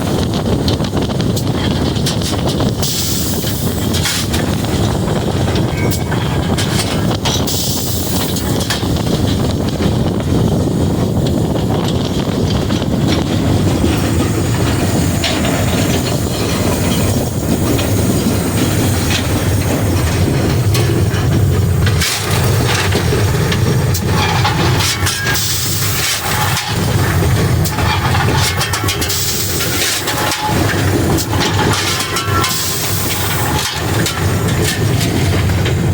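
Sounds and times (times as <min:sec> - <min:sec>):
steam locomotive rumble and rattle: 0:00.0 - 0:35.9
sharp metal clanks: 0:05.5 - 0:08.9, 0:13.2 - 0:35.8.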